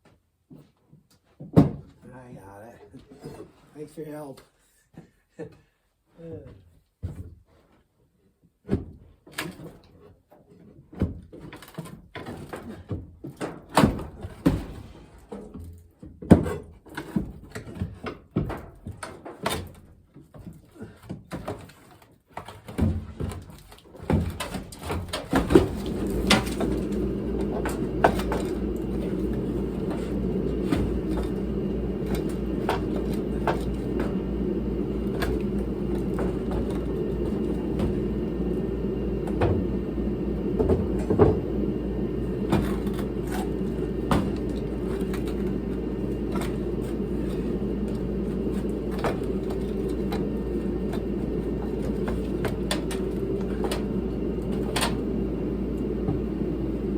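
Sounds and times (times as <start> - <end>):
machine hum: 24.1 - 56.9.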